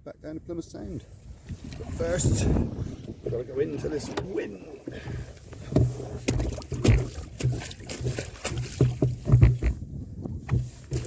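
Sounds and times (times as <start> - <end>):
hollow knocks on canoe hull: 4.1 - 11.0.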